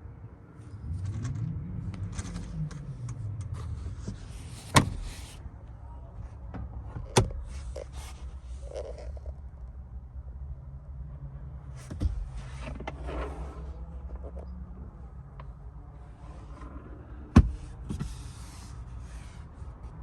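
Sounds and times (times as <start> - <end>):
diesel engine revving: 0.7 - 5.4.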